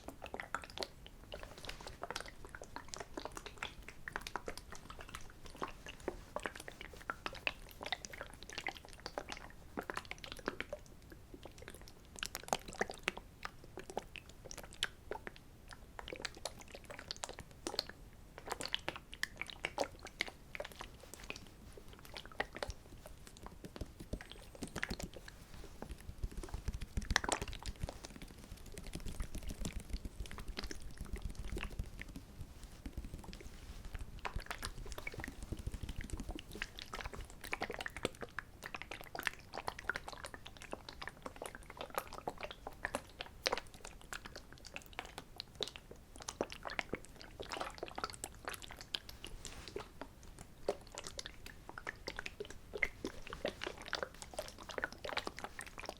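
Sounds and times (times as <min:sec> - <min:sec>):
soft clicks and crackles: 0:00.0 - 0:55.9.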